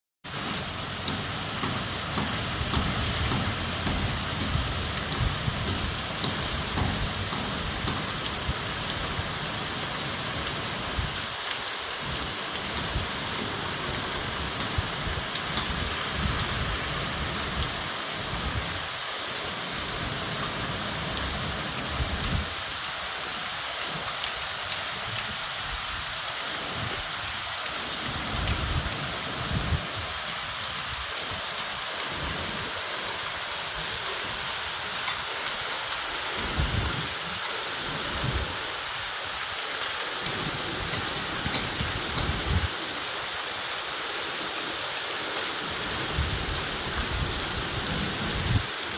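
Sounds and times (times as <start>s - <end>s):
steady rain hiss: 0.2s - 48.9s
raindrop ticks: 0.9s - 9.2s, 10.9s - 17.7s, 20.4s - 22.5s, 23.6s - 30.1s, 30.8s - 38.5s, 39.4s - 42.7s.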